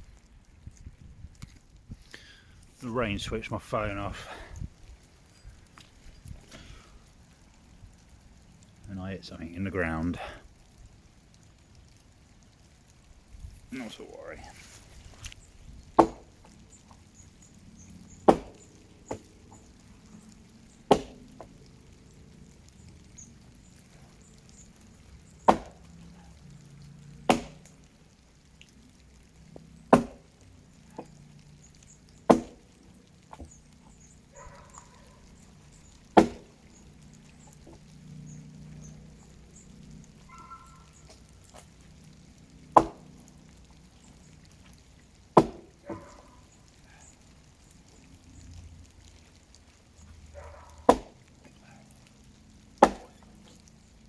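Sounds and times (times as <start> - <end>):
axe chopping into tree: 15.9 - 16.4, 18.2 - 19.3, 20.8 - 21.5, 25.4 - 25.9, 27.3 - 27.7, 29.9 - 30.3, 32.2 - 32.8, 36.1 - 36.6, 42.7 - 43.0, 45.4 - 45.8, 50.9 - 51.2, 52.8 - 53.2.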